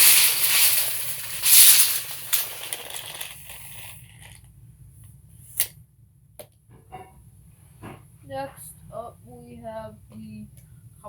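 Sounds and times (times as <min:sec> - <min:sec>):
tape measure blade rattling: 0:00.0 - 0:04.4.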